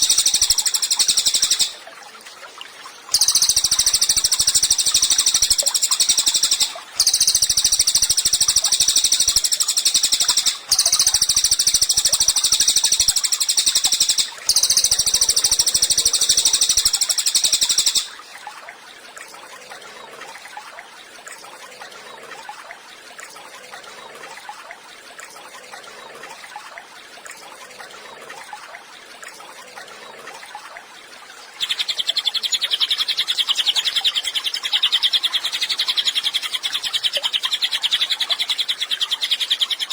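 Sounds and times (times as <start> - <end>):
songbird chattering song: 0.0 - 1.8, 3.2 - 18.2, 31.6 - 39.9.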